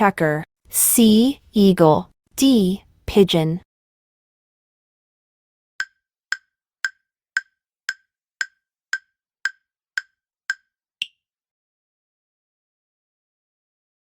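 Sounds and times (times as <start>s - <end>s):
countdown timer ticks: 5.8s - 11.2s.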